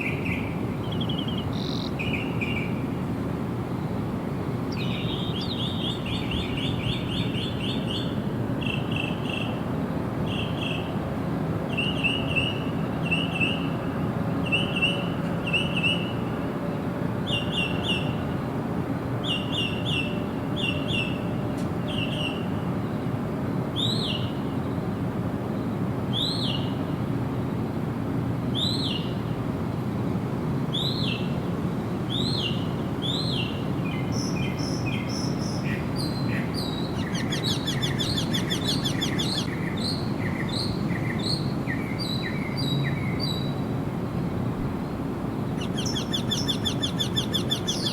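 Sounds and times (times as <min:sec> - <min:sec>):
birds chirping: 0:00.0 - 0:02.8, 0:32.2 - 0:43.5, 0:44.9 - 0:47.9
steady background noise: 0:00.0 - 0:47.9.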